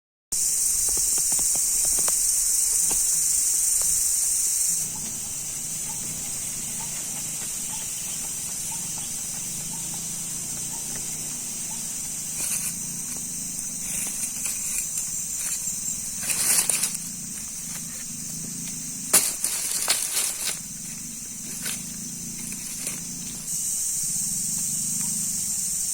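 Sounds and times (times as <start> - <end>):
insects droning: 0.4 - 25.9
rustling and crackling clicks: 18.7 - 20.6.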